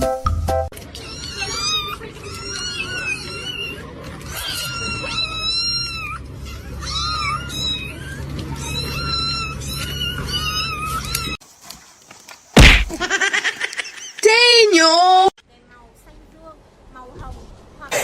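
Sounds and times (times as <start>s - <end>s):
cat meowing: 1.0s - 11.4s
loud thump: 12.6s - 13.0s.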